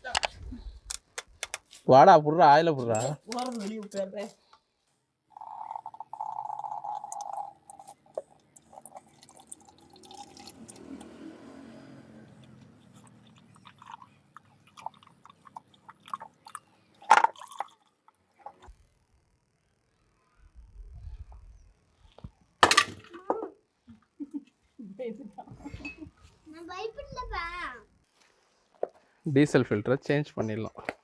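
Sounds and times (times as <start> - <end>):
scattered clicks: 0.9 - 1.7
oil pouring and dripping: 5.3 - 11.8, 12.4 - 18.7.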